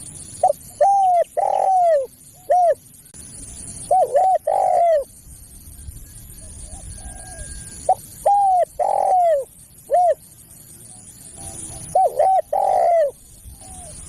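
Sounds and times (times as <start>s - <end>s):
dove cooing: 0.4s - 2.8s, 3.9s - 5.1s, 6.4s - 10.3s, 10.9s - 14.0s.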